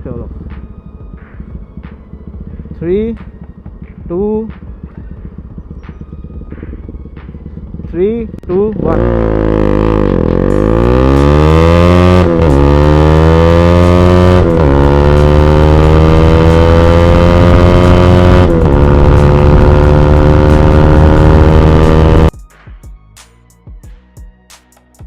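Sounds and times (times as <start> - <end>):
motorcycle engine accelerating: 0.4 - 22.3.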